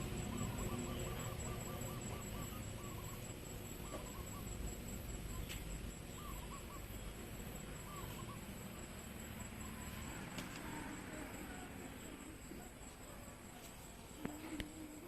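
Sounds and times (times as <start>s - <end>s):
bird hooting: 0.0s - 7.1s, 7.8s - 8.6s
steady high whine: 0.0s - 15.0s.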